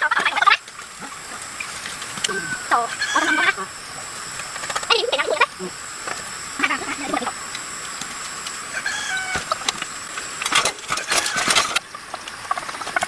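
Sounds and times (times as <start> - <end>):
bird-like animal calls: 0.0 - 4.1, 8.6 - 9.8, 10.9 - 13.0
harsh noisy rasping: 0.0 - 13.0.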